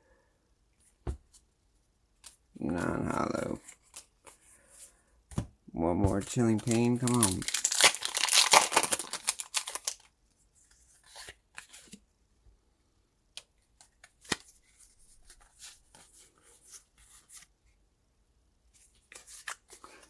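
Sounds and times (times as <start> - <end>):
foil wrapper crinkling: 6.2 - 10.1.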